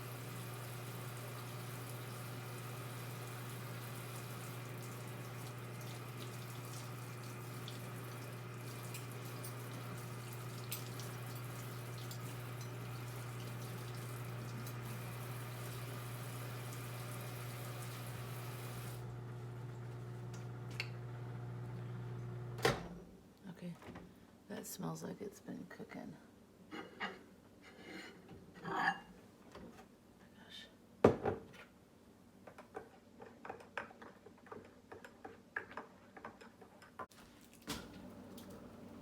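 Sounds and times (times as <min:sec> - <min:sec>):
microwave oven humming: 0:00.0 - 0:23.1, 0:37.7 - 0:39.0.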